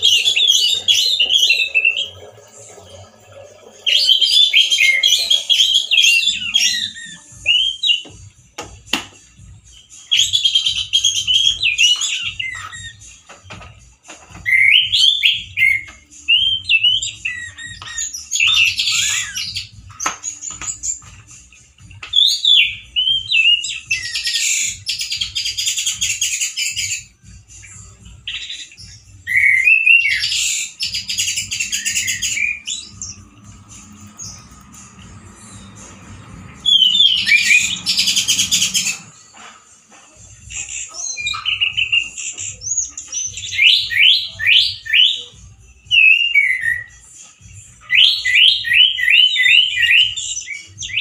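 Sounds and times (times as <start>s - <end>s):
thrush singing harshly: 0.0s - 8.0s, 29.3s - 39.7s.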